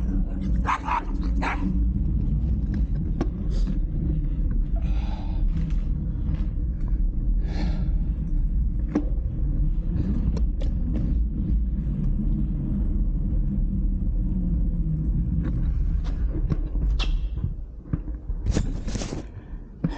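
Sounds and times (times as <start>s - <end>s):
bike rolling noise: 0.0s - 19.9s
wind rumble: 0.0s - 19.9s.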